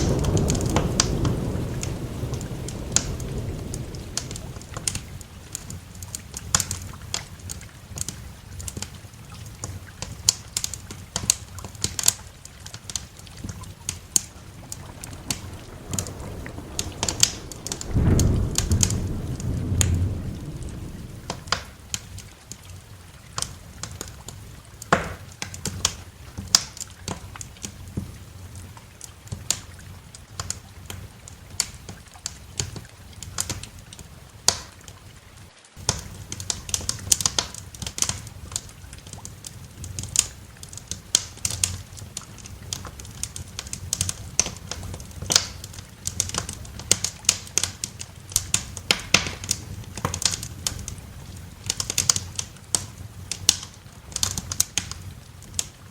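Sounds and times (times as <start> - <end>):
low steady rumble: 0.0 - 5.9, 13.6 - 22.4
fire popping: 0.0 - 35.0, 35.8 - 55.9
wood fire crackling: 0.0 - 55.9.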